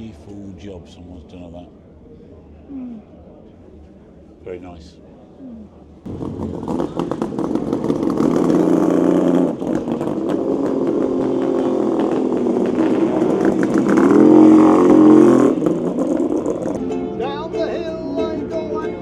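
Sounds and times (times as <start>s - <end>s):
motorcycle engine running: 6.1s - 18.6s.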